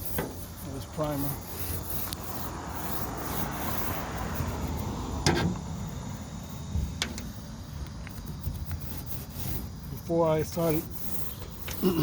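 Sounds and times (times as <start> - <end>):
scratchy brushing on metal hull: 0.0 - 5.6, 8.2 - 12.0.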